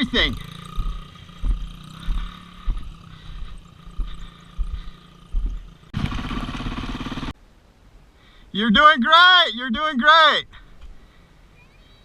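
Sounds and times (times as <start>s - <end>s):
dirt bike engine running: 0.0s - 7.4s
low thumps: 0.3s - 6.2s.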